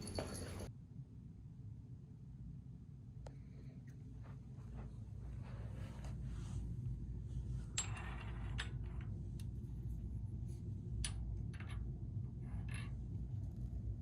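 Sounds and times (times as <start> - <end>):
light clicks and clinks: 0.0 - 0.7
steady low hum: 0.0 - 14.0.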